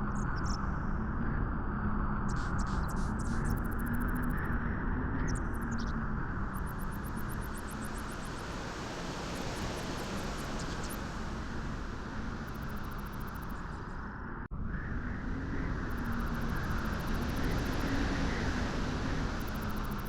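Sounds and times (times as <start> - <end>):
rushing wind: 6.3 - 20.0.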